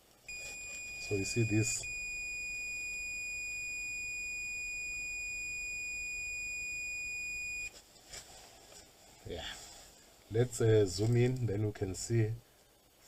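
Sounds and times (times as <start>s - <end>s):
multimeter continuity beep: 0.3s - 7.7s.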